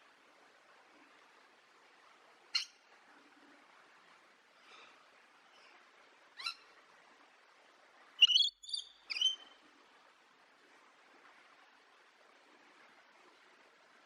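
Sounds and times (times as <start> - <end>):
parrot calling: 8.2 - 9.4.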